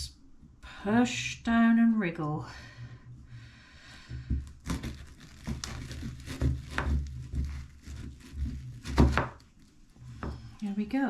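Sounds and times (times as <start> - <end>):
knife crunching through chocolate cake: 4.5 - 10.1.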